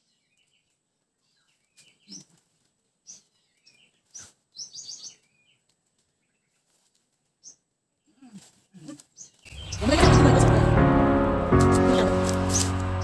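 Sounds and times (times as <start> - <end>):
small birds chirping: 0.0 - 10.8.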